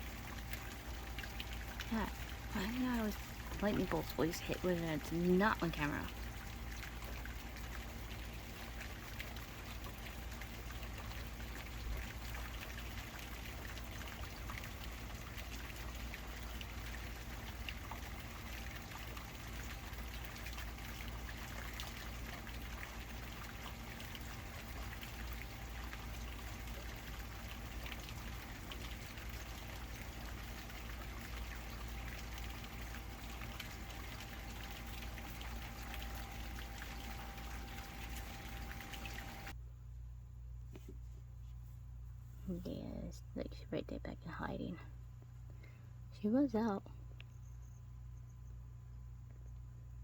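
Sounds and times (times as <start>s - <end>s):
raindrops pattering: 0.0s - 39.5s
low hum: 0.0s - 50.0s.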